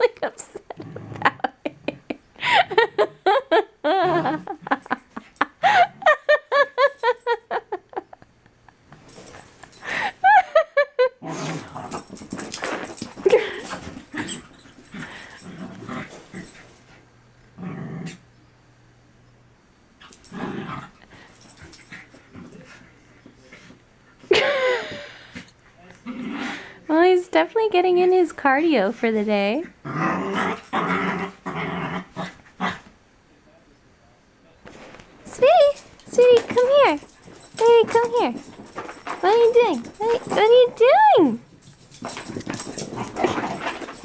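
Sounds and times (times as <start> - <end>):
puppy growling and yipping: 29.8 - 32.9.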